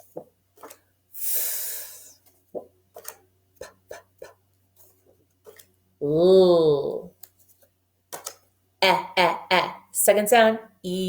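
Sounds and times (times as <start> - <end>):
woman making letter sounds: 3.0 - 4.4, 8.8 - 9.9.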